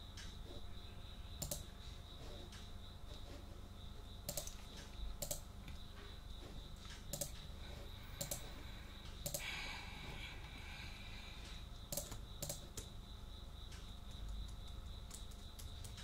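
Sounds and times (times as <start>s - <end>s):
keyboard and mouse clicks: 1.4s - 1.7s, 4.2s - 5.8s, 6.8s - 7.5s, 8.2s - 9.5s, 11.9s - 12.9s, 13.7s - 16.0s.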